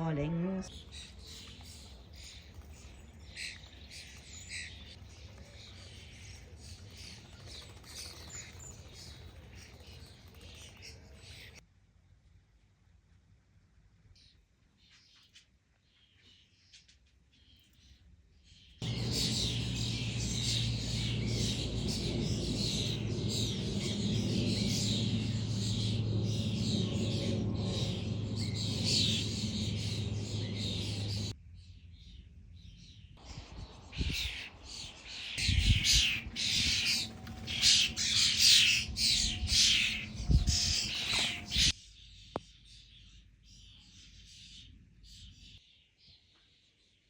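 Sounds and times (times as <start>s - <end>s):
starlings chattering and squawking: 0.0s - 11.6s, 18.8s - 31.4s, 33.2s - 42.0s
steady low hum: 18.8s - 31.4s.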